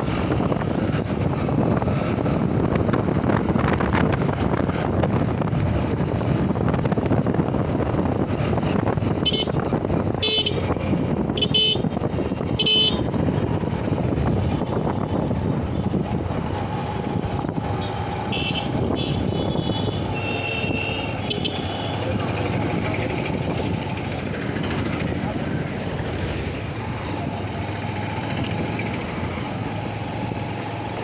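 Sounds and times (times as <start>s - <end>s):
wind and road noise: 0.0s - 31.0s
vehicle horn toots: 9.2s - 9.6s, 10.2s - 10.7s, 11.4s - 11.9s, 12.6s - 13.0s, 17.8s - 22.0s.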